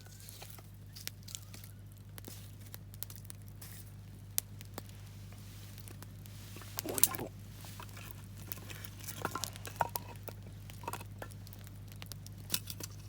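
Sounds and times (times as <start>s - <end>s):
campfire crackling and popping: 0.1s - 13.0s.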